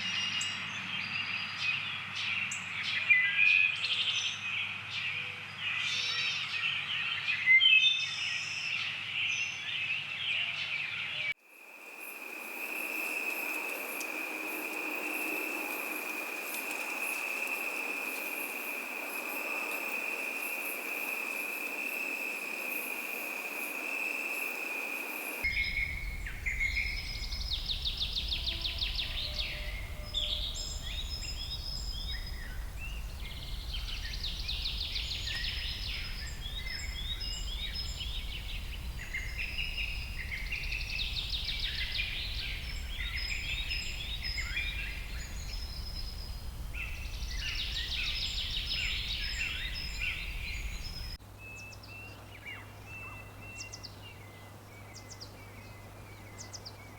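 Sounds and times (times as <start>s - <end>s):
songbirds trilling: 8.1s - 56.9s
insect buzzing: 11.6s - 51.2s
steady low rumble: 25.5s - 51.2s.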